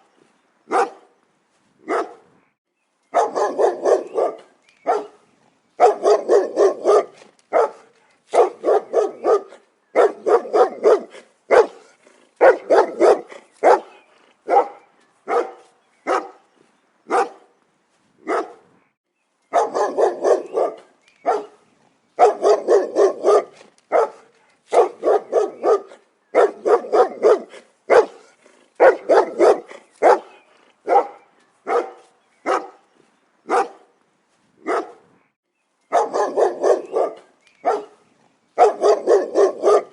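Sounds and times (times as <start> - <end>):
dog barking: 0.7 - 1.1, 1.8 - 2.3, 3.1 - 5.2, 5.8 - 16.4, 17.1 - 17.5, 18.2 - 18.6, 19.5 - 21.6, 22.2 - 32.8, 33.5 - 33.9, 34.6 - 35.0, 35.9 - 38.0, 38.6 - 39.9.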